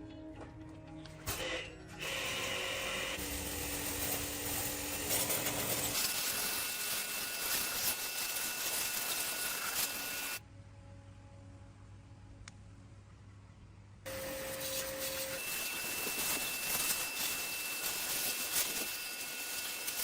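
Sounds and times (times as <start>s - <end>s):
harsh workshop tool noise: 1.2s - 10.4s, 14.1s - 20.0s.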